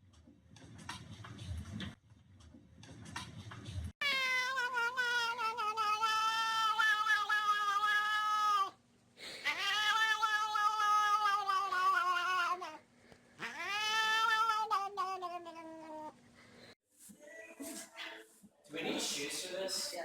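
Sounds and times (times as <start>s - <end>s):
cat yowling: 4.0s - 8.8s, 9.4s - 12.8s, 13.4s - 16.2s.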